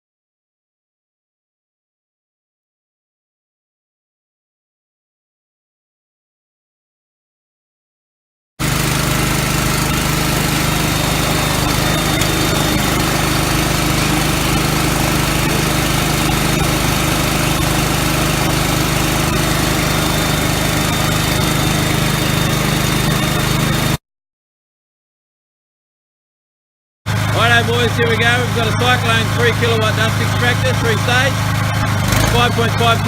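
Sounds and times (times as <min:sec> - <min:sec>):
small engine running: 0:08.6 - 0:24.0, 0:27.1 - 0:33.0.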